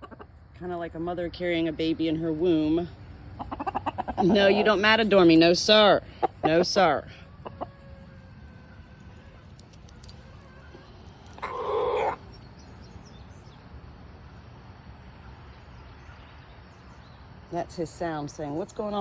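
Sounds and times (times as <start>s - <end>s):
rooster call: 7.2s - 12.3s.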